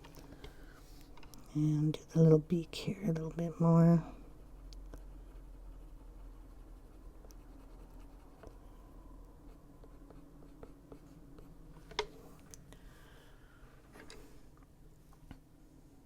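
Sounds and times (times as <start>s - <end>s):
colored pencil scratching on paper: 4.3s - 8.5s, 9.4s - 11.6s.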